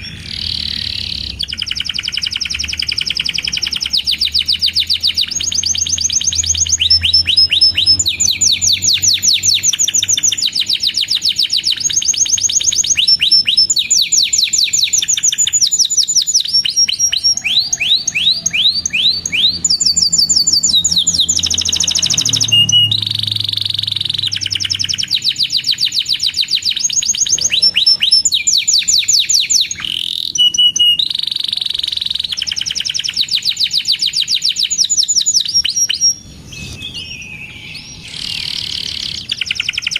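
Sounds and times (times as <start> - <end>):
canary singing in fast trills: 0.0 - 39.9.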